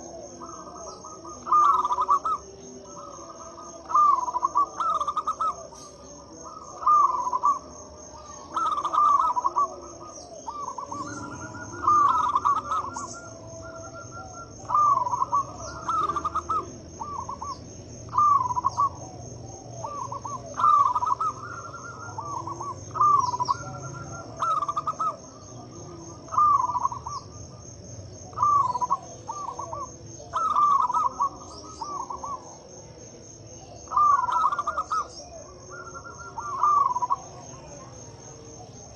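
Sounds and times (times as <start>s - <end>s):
dove cooing: 0.0s - 38.9s
steady high-pitched tone: 8.4s - 17.5s.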